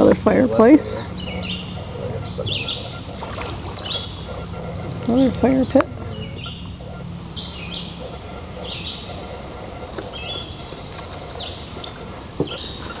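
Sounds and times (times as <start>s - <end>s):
low steady background: 0.0s - 13.0s
songbirds calling: 0.0s - 13.0s
bird trill: 0.8s - 4.6s, 6.0s - 12.8s.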